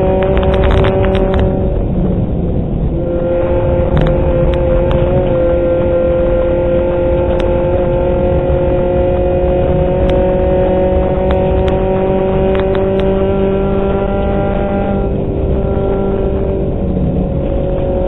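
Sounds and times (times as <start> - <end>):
car engine at high revs: 0.0 - 18.0
sharp clicks striking car: 11.2 - 14.1.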